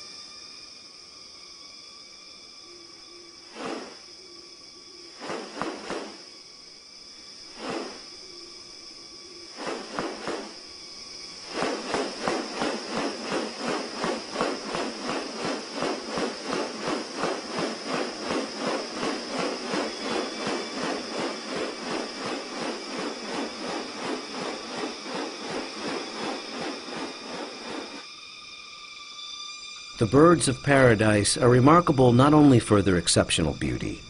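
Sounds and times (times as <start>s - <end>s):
high insect drone: 0.0s - 34.0s
fast pulsing calls: 11.4s - 28.0s.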